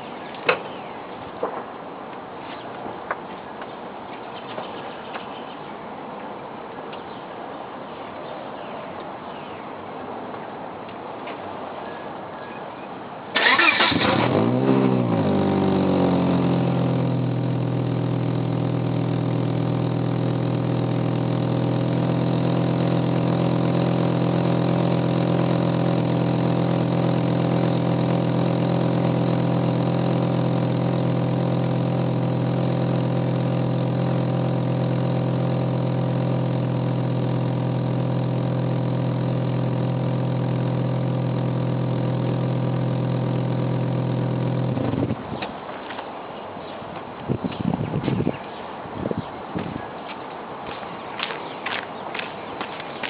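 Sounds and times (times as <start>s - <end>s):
car engine starting and idling: 13.4s - 45.5s.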